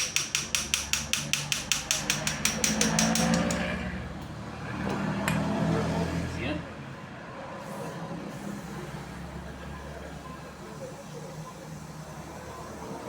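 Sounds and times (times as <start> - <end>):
fast even clicking: 0.0 - 3.6.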